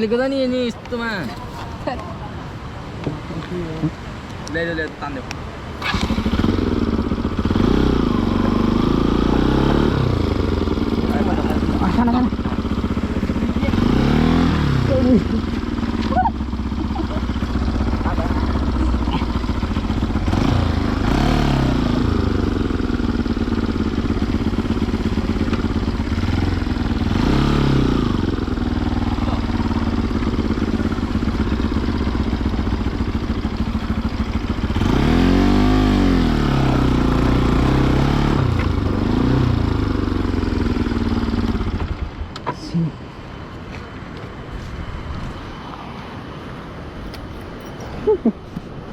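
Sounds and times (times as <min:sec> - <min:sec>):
motorcycle engine revving: 0:05.8 - 0:42.3.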